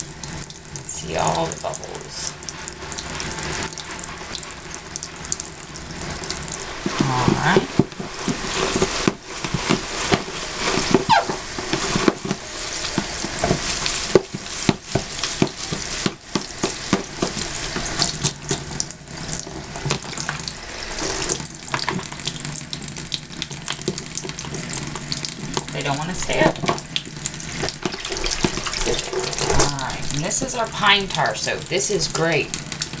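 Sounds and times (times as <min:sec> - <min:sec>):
bath pouf squelching: 0:00.0 - 0:33.0
soap lather crackling: 0:00.0 - 0:33.0
water running from a tap: 0:00.0 - 0:33.0.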